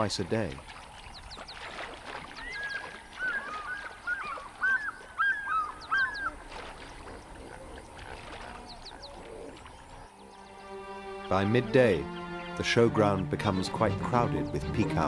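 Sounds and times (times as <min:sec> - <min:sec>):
birds chirping: 0:00.0 - 0:15.0
bird squawking: 0:02.4 - 0:06.4.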